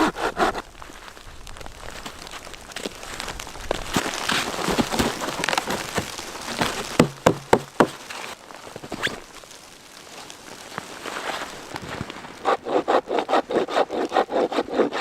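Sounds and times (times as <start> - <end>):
crunching rustling handling noise: 0.6 - 12.6
sharp knocks: 6.9 - 8.0.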